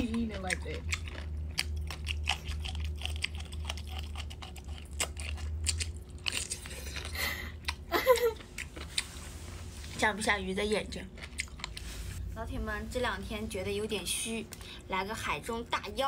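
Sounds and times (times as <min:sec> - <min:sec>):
crunchy food being chewed: 0:00.0 - 0:09.2, 0:10.8 - 0:12.0
low steady hum: 0:00.0 - 0:16.0.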